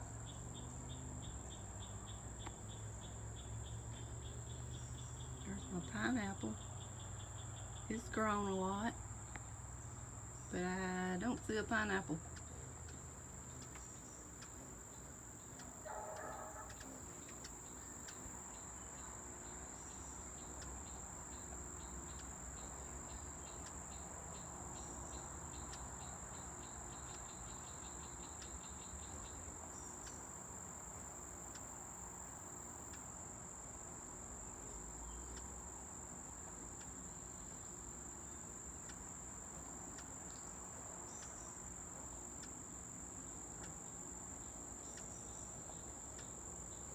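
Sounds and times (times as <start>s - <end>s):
insects trilling: 0.0s - 46.9s.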